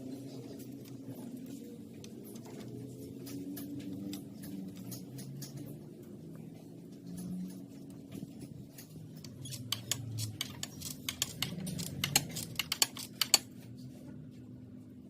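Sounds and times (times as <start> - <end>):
low steady hum: 0.0 - 15.0
irregular sharp clicks and taps: 8.2 - 13.5.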